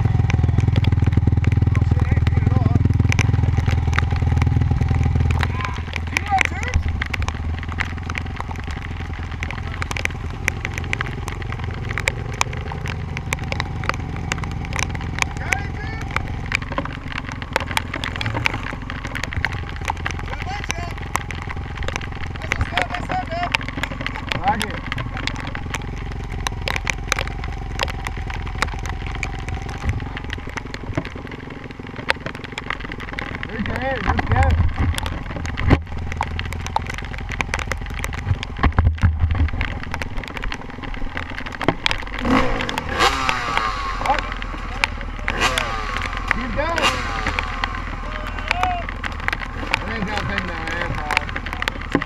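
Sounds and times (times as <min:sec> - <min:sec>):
dirt bike engine idling: 0:00.0 - 0:52.0
sharp clicks: 0:00.0 - 0:52.0.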